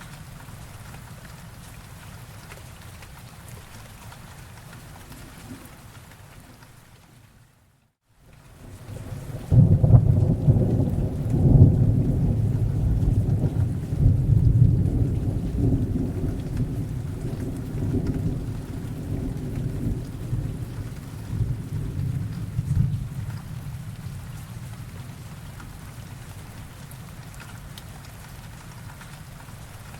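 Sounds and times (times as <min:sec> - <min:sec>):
steady rain: 0:00.0 - 0:29.9
thunder rolling: 0:08.9 - 0:24.4.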